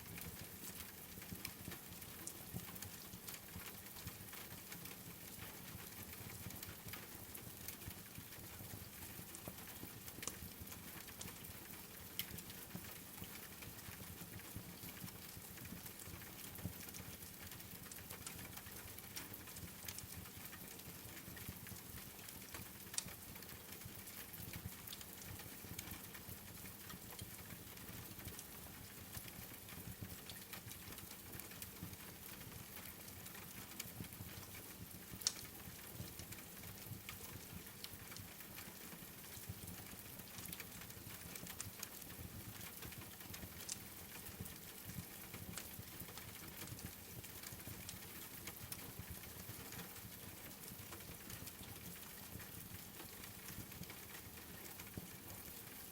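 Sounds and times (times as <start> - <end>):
faint rain patter: 0.0 - 55.9
wood fire crackling: 32.3 - 38.7.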